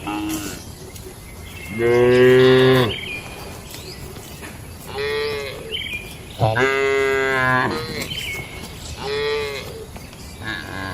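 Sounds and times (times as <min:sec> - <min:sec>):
cattle mooing: 0:06.4 - 0:08.1.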